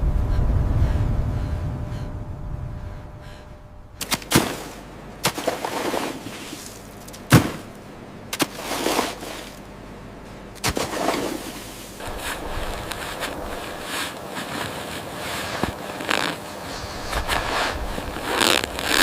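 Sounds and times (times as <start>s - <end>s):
rasping or crunching noise: 2.6s - 9.7s, 10.6s - 19.0s
sharp knocks or cracks: 4.0s - 5.6s, 7.0s - 7.8s.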